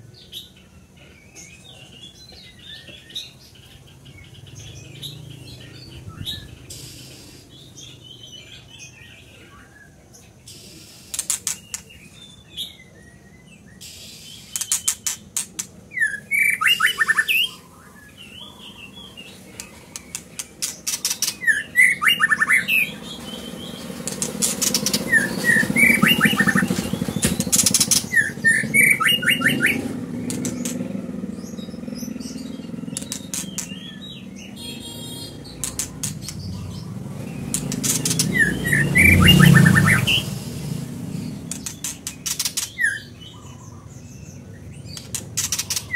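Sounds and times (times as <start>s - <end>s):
bird singing varied phrases: 0.0s - 45.9s
rapid sharp clicking notes: 23.8s - 31.0s, 32.9s - 33.8s, 35.5s - 36.5s, 37.4s - 38.8s, 41.5s - 42.8s.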